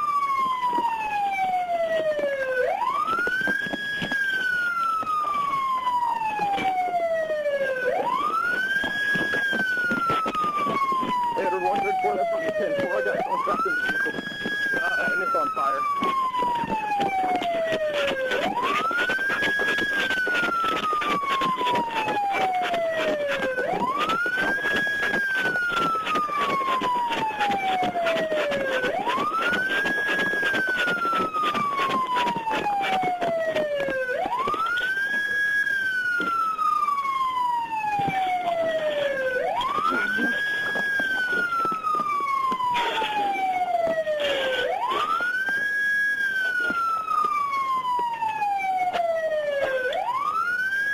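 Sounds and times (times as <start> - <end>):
police siren wailing: 0.0 - 50.9
steady crackling noise: 0.0 - 50.9.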